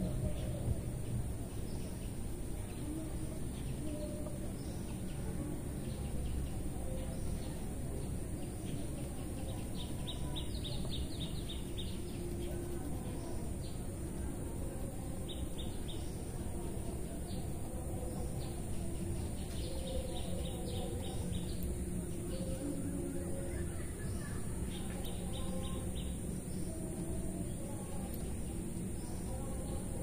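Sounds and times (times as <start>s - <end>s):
birds chirping: 0.0s - 30.0s
low rumbling background noise: 0.0s - 30.0s.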